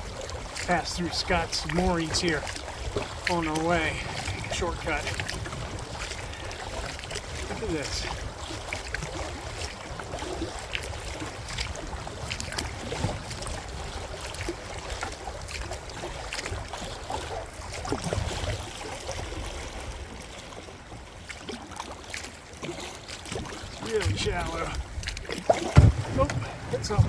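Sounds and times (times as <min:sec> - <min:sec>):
paddle splashing and dripping: 0:00.0 - 0:27.0
paddle knocks: 0:23.2 - 0:27.0.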